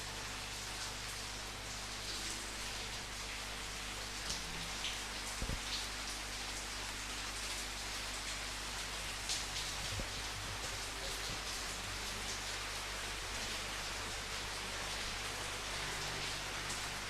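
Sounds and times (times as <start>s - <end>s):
raindrops striking a surface: 0.0s - 17.0s
steady rain falling: 0.0s - 17.0s.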